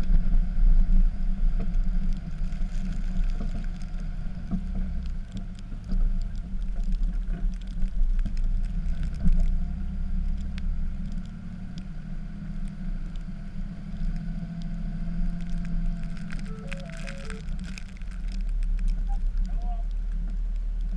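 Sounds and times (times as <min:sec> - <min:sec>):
diesel engine running: 0:08.6 - 0:20.3.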